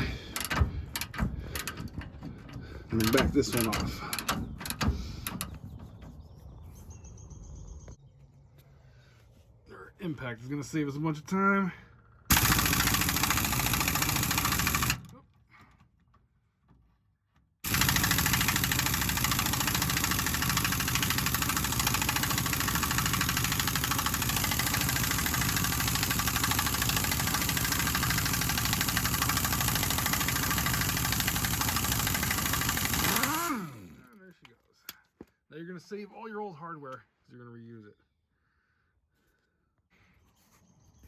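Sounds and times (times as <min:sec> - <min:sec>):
impact wrench hammering: 0:00.0 - 0:05.6, 0:12.3 - 0:15.1, 0:17.6 - 0:34.0.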